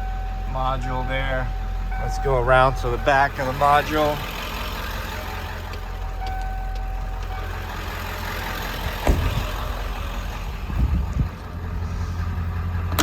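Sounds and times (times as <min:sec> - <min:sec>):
diesel engine idling: 0:00.0 - 0:13.0
dull thumps: 0:08.9 - 0:09.7
sharp knock: 0:09.0 - 0:09.4.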